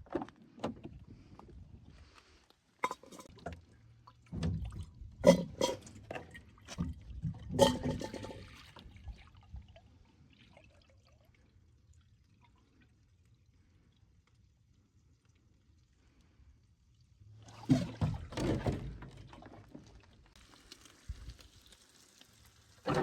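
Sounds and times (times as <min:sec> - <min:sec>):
pot and gear knocking and clattering: 0:02.8 - 0:03.3, 0:07.4 - 0:08.4
liquid sounds: 0:02.8 - 0:23.0.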